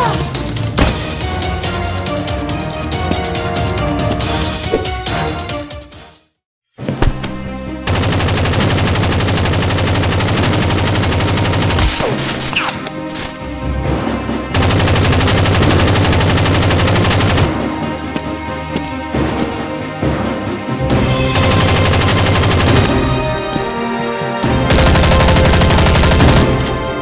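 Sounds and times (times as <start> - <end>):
rapid machine-gun fire: 7.9 - 11.8, 14.6 - 17.5, 21.3 - 23.1, 24.7 - 26.8.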